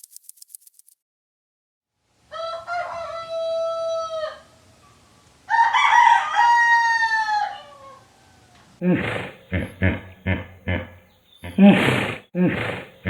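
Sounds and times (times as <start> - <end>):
rooster crowing: 2.3 - 4.9, 5.5 - 8.8.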